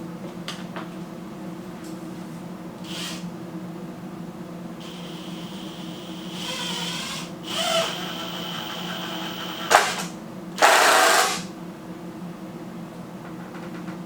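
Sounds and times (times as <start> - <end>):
power drill running: 2.8 - 3.2, 4.8 - 11.5.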